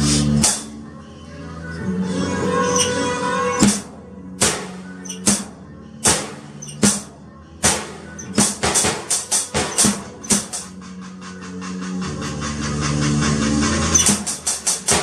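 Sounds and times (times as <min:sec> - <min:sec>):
faint backing music: 0:00.0 - 0:15.0
drum kit hits: 0:00.4 - 0:00.7, 0:03.6 - 0:10.7, 0:14.0 - 0:15.0.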